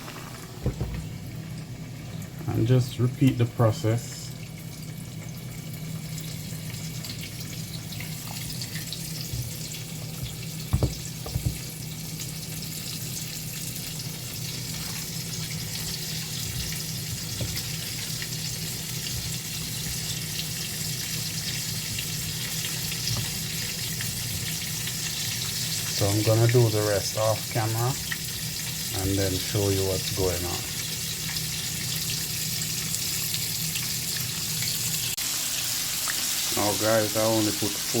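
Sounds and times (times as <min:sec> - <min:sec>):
chicken deep-frying in oil: 0:00.0 - 0:38.0
short knocks: 0:00.6 - 0:01.1, 0:10.2 - 0:11.7.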